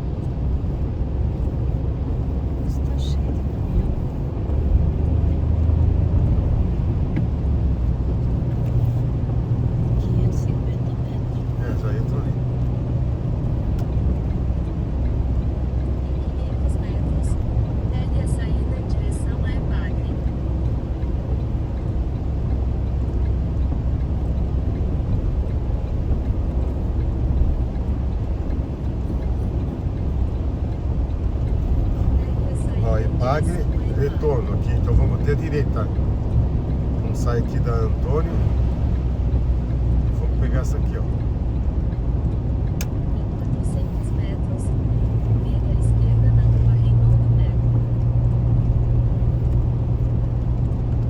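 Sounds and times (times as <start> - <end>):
car engine and road drone: 0.0 - 51.0.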